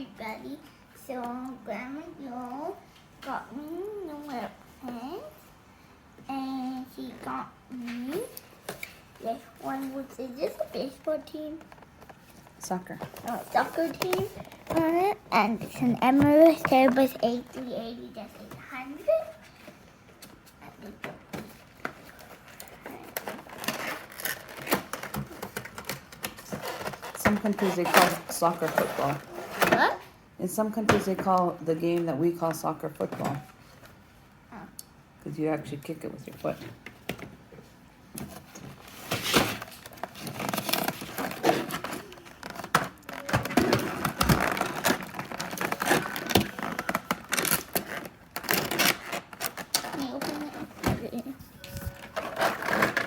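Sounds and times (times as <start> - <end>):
cardboard box and packaging handled: 38.2 - 53.0.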